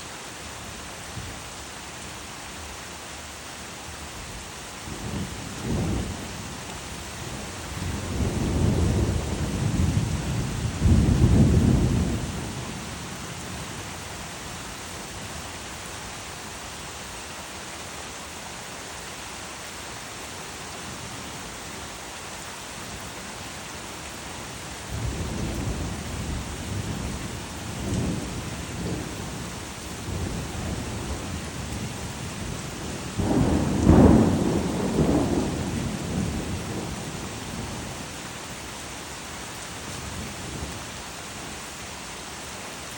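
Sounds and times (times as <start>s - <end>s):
steady rain hissing: 0.0s - 42.9s
low thunder rumbling: 7.2s - 13.6s, 24.9s - 38.0s.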